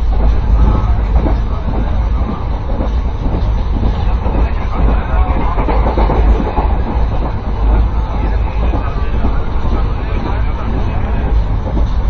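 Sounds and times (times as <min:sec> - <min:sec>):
train rumble: 0:00.0 - 0:12.0
train wheels clattering: 0:00.0 - 0:12.0.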